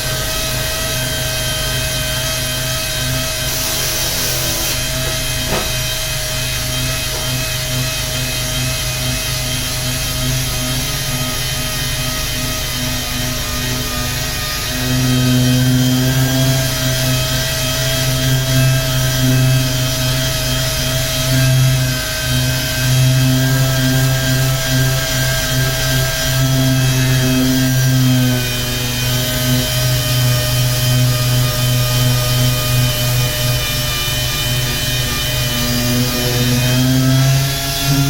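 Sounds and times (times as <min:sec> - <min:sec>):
power sander humming: 0:00.0 - 0:38.0.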